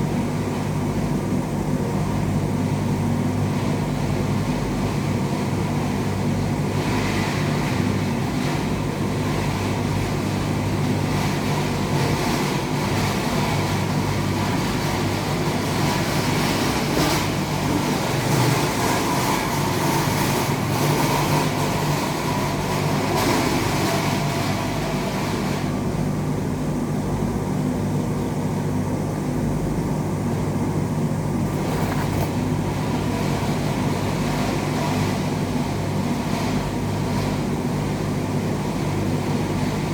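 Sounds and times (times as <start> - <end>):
low electrical hum: 25.8 - 39.9.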